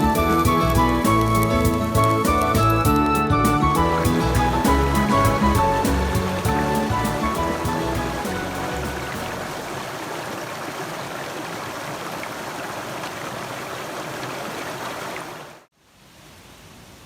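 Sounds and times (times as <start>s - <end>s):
mountain stream flowing: 0.0s - 16.4s
faint background hiss: 15.7s - 17.0s.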